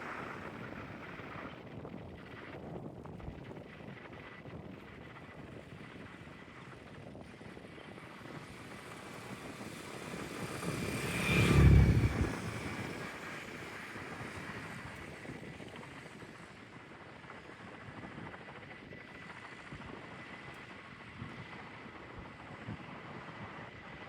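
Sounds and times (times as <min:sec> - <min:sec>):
propeller aircraft flying past: 0:07.9 - 0:15.3.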